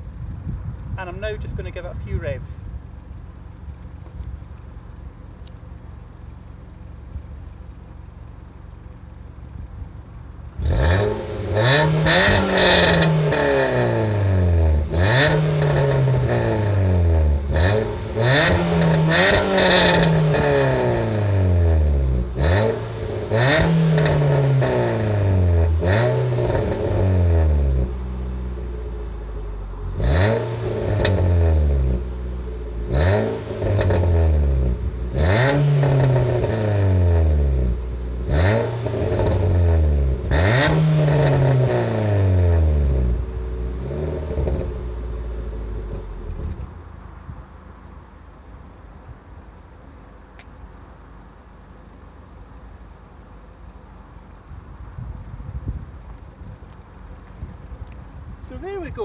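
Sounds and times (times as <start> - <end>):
car engine revving: 4.3 - 47.7.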